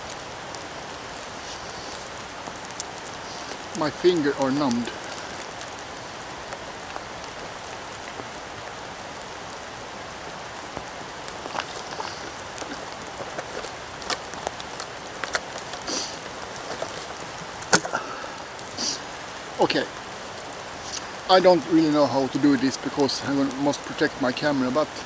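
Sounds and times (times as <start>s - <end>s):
heavy rain on woods: 0.0s - 25.0s.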